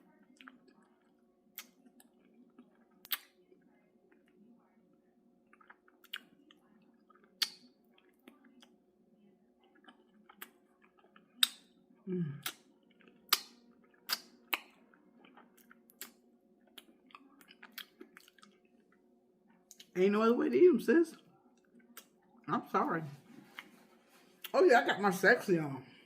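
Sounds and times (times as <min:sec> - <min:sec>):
low vocal hum: 0:12.0 - 0:12.5
wet chewing and sucking: 0:12.4 - 0:18.6.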